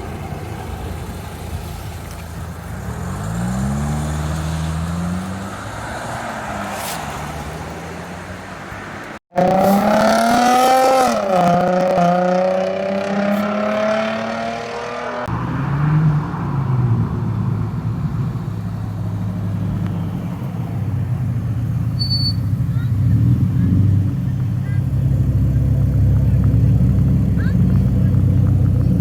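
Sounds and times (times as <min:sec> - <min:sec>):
car engines: 0:00.0 - 0:29.0
car revving: 0:00.0 - 0:29.0
deep steady engine note: 0:17.0 - 0:29.0.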